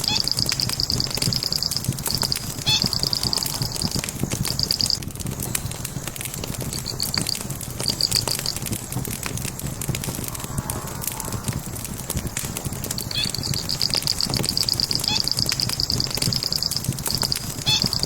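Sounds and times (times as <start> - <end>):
high chirping trills: 0.0 - 5.0, 13.1 - 18.0
logs crackling in fireplace: 0.0 - 18.0.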